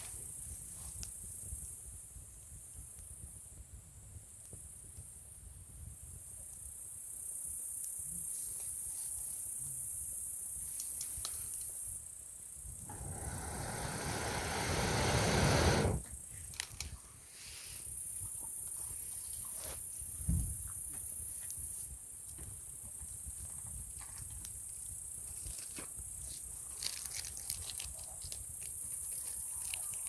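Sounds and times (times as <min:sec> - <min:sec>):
high-pitched hiss: 0:06.2 - 0:20.0
breath blown through pipe: 0:12.8 - 0:16.0
campfire popping: 0:12.8 - 0:16.1.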